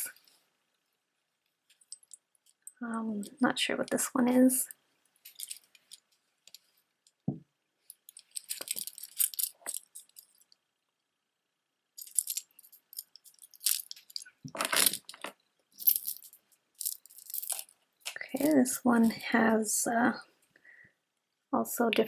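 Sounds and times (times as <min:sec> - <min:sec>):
beads clattering: 0:01.7 - 0:02.8, 0:05.2 - 0:07.2, 0:07.8 - 0:10.6, 0:12.0 - 0:19.2
beads clicking and jingling: 0:01.7 - 0:04.0, 0:05.2 - 0:07.2, 0:07.8 - 0:10.6, 0:12.0 - 0:19.3.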